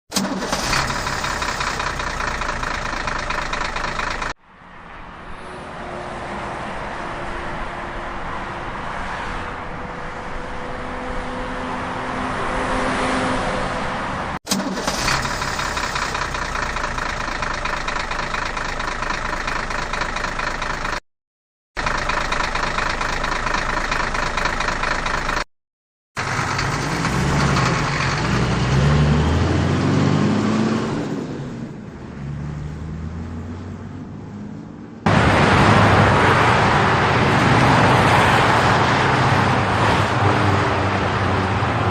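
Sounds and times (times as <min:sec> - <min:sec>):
heavy vehicle engine revving: 0:00.2 - 0:04.4, 0:14.5 - 0:21.0, 0:26.2 - 0:31.5.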